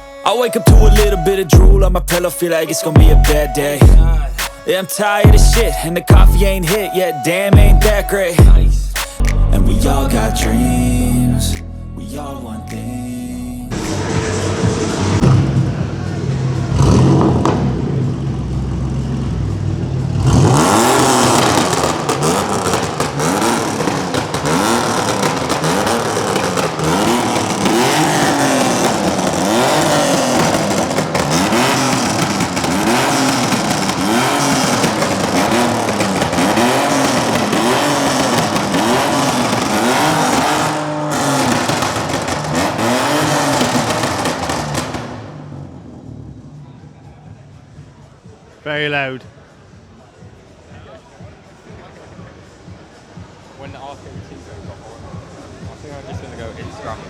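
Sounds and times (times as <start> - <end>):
music: 0.0 - 16.4
car engine revving: 0.7 - 48.0.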